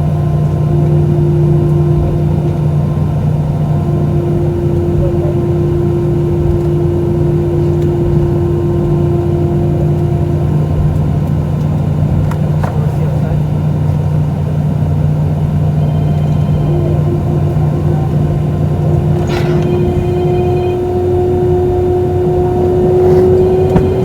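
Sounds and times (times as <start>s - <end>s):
aircraft cabin engine drone: 0.0s - 24.0s
higher hum: 15.1s - 24.0s.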